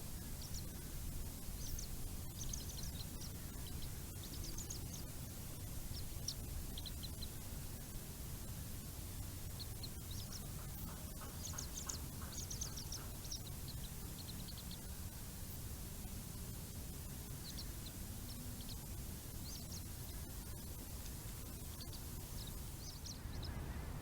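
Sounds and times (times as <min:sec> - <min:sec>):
steady low rumble: 0:00.0 - 0:24.0
high-pitched bird chirping: 0:09.5 - 0:14.9, 0:21.5 - 0:23.6.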